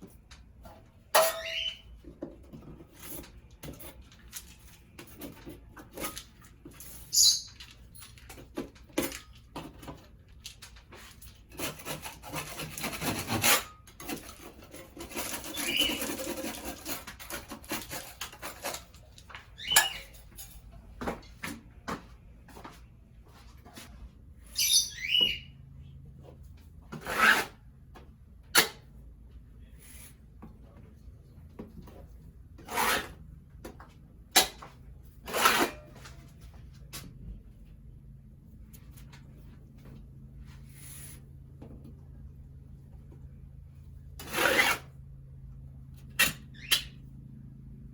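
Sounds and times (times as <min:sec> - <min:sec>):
brief squeaks: 0:01.2 - 0:02.0, 0:07.0 - 0:07.6
hand tool scraping: 0:11.1 - 0:20.1, 0:26.9 - 0:27.6, 0:32.6 - 0:33.2, 0:35.2 - 0:36.2, 0:44.2 - 0:44.9.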